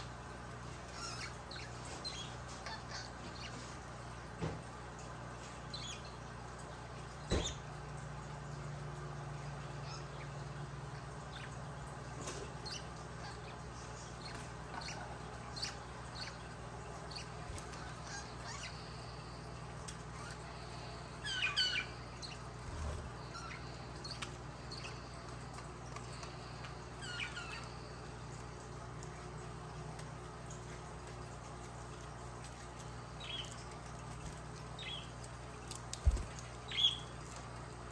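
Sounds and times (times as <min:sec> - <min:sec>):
budgerigars chirping: 0:36.0 - 0:37.1.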